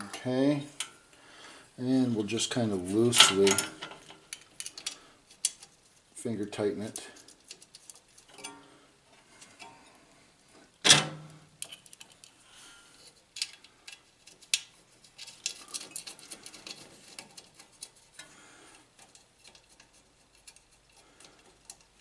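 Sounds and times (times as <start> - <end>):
small metal parts clicking: 3.1 - 5.8, 7.0 - 8.6, 13.3 - 18.3, 19.0 - 22.0.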